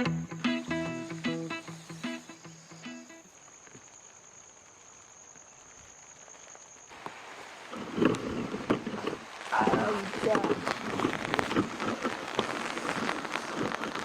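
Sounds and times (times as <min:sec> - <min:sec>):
guitar music: 0:00.0 - 0:03.3
cricket trill: 0:00.0 - 0:07.0
rain patter: 0:00.0 - 0:14.0.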